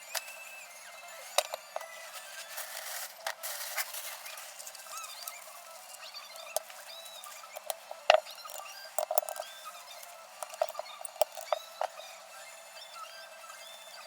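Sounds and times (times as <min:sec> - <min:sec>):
small tools clicking and tapping: 0:00.0 - 0:00.5, 0:01.2 - 0:12.0.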